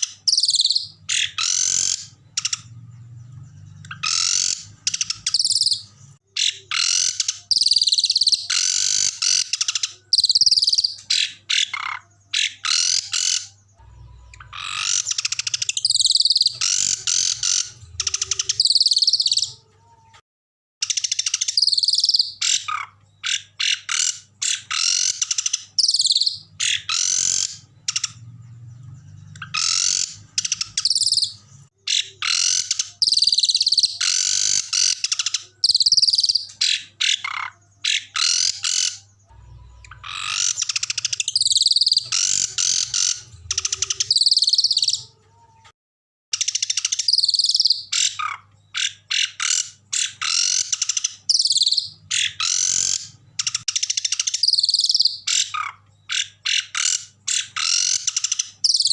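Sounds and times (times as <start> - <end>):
songbirds singing harsh trills: 0.0 - 20.2, 20.8 - 45.7, 46.3 - 58.9.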